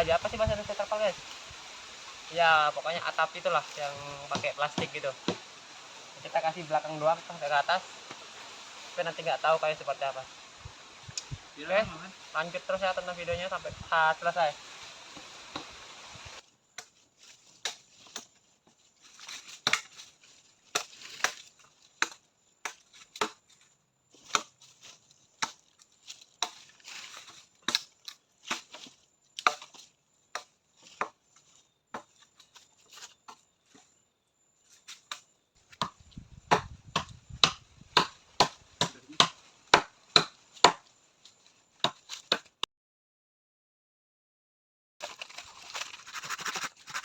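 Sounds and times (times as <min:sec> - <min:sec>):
blade chopping into wood: 0:19.6 - 0:20.0, 0:20.7 - 0:23.4, 0:35.1 - 0:40.9.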